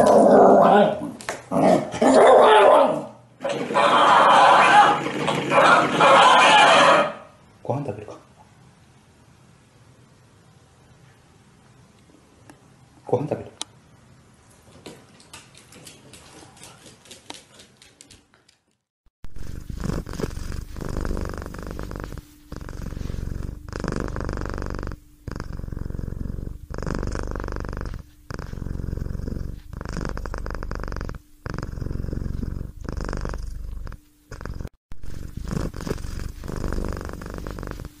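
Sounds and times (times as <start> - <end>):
cat purring: 19.2 - 38.0.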